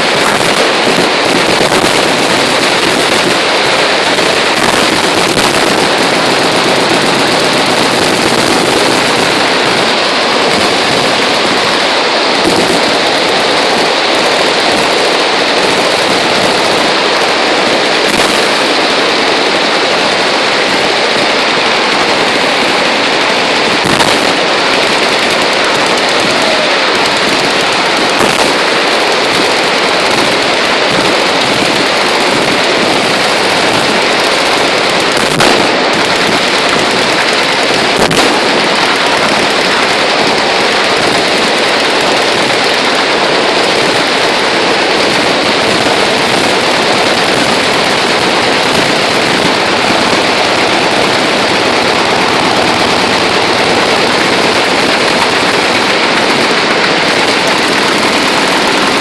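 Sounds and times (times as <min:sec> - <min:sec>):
machine guns firing: 0:00.0 - 0:59.0
loud single gunshot cracks: 0:35.2 - 0:35.8.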